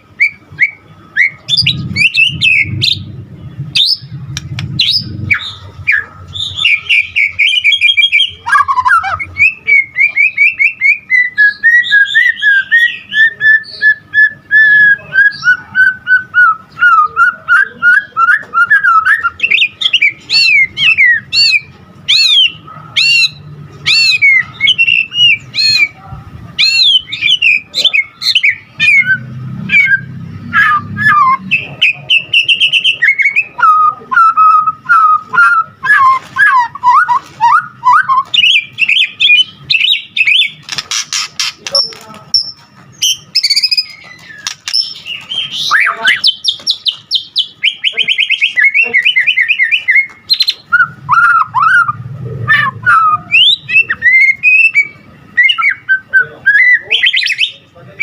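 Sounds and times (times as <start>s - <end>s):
songbird singing whistled trills: 0.0s - 26.0s, 26.6s - 57.6s.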